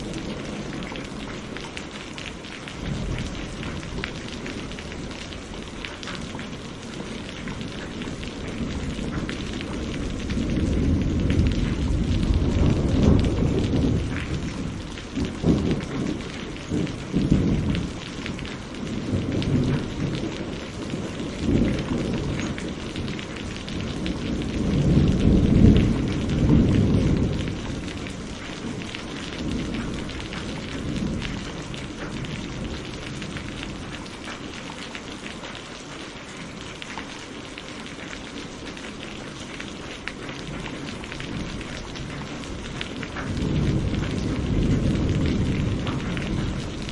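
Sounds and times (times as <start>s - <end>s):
thunder rumbling: 0.0s - 34.4s, 38.9s - 46.9s
heavy rain: 0.0s - 46.9s
sharp thunder claps: 7.0s - 34.0s, 41.2s - 46.9s.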